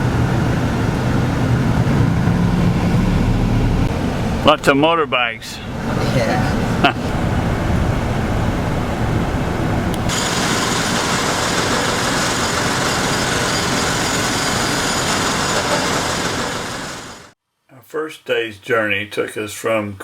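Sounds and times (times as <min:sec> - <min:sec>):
city traffic noise: 0:00.0 - 0:17.4.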